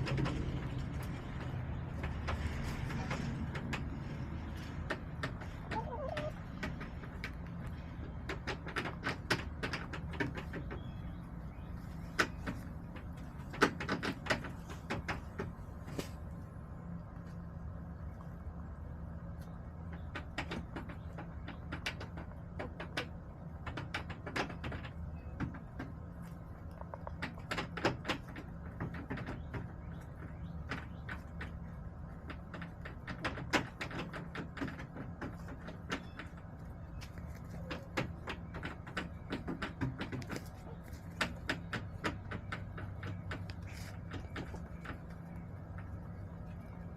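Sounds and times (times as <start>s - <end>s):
steady low rumble: 0.0s - 22.5s
hens pecking taps and clicks: 0.0s - 46.9s
steady low hum: 0.0s - 46.9s.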